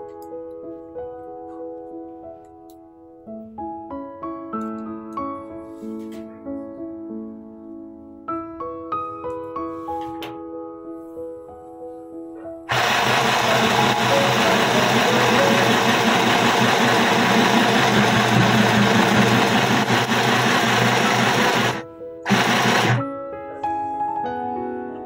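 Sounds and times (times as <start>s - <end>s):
soft piano music: 0.0s - 12.7s, 21.8s - 22.2s, 23.0s - 25.0s
sewing machine rattling: 12.7s - 23.0s.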